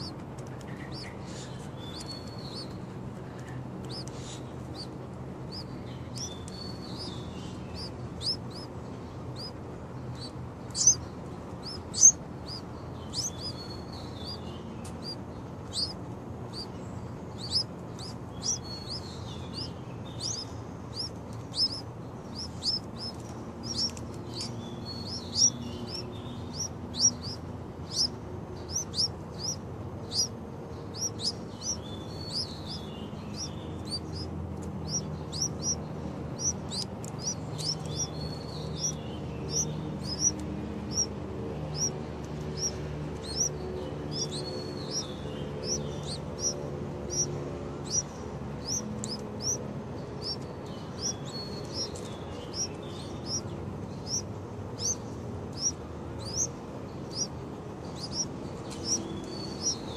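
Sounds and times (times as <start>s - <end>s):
small birds chirping: 0.0s - 59.9s
bird warbling: 10.2s - 14.4s, 15.0s - 30.3s.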